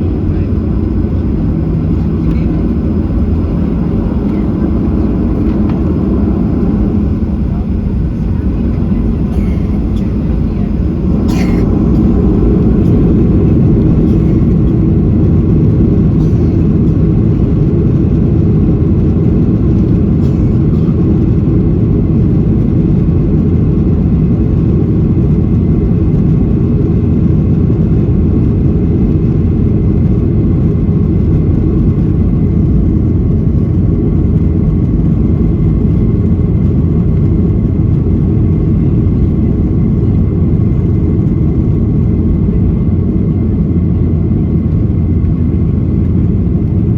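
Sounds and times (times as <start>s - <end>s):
jet engine and airflow roar: 0.0s - 46.9s.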